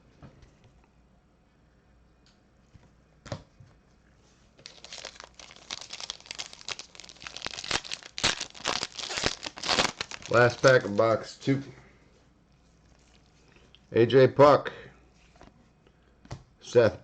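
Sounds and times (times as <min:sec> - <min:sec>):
wrapper tearing and crinkling: 0:04.6 - 0:11.0.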